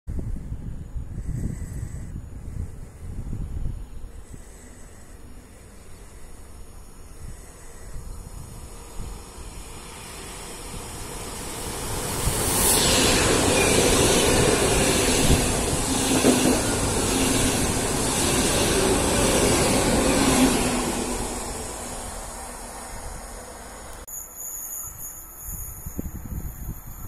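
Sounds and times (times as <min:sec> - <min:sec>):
high-speed train passing: 0:00.3 - 0:27.0.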